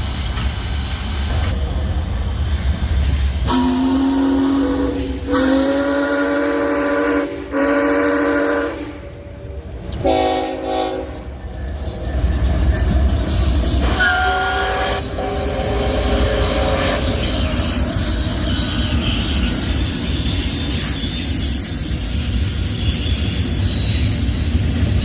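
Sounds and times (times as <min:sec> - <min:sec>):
low train rumble: 0:00.0 - 0:25.0
locomotive horn chord blasts: 0:03.5 - 0:09.1, 0:10.0 - 0:11.3, 0:13.8 - 0:17.1.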